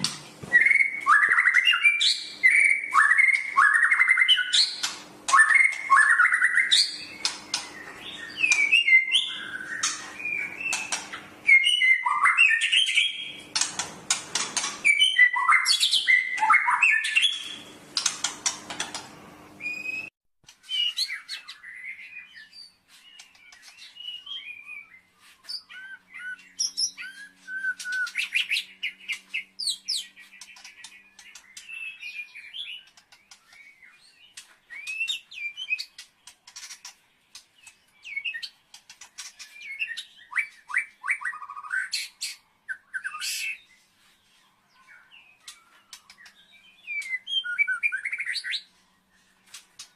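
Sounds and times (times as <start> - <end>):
songbird singing: 0.0 - 49.9.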